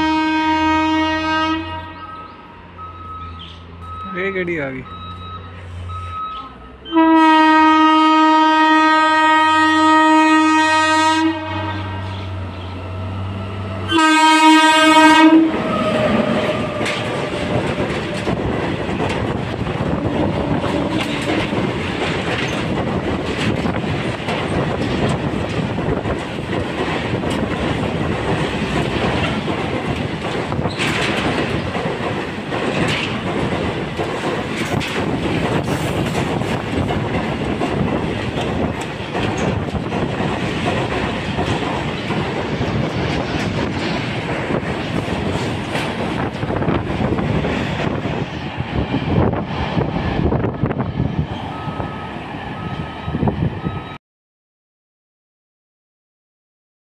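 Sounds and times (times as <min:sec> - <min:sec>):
train horn blasts: 0:00.0 - 0:02.3, 0:06.8 - 0:12.4, 0:13.2 - 0:17.1
freight wagons rumbling and clacking: 0:15.6 - 0:47.9.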